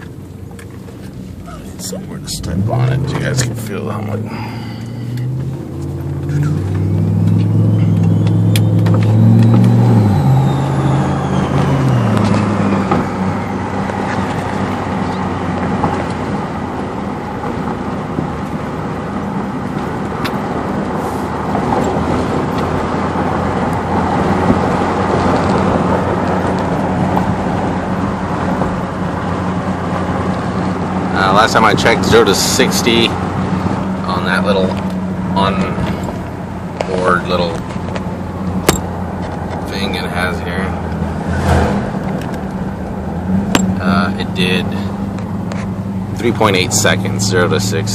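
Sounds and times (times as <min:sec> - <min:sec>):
car engine accelerating: 0:00.0 - 0:47.9
road noise: 0:00.0 - 0:47.9
turbo whistle: 0:07.1 - 0:13.7.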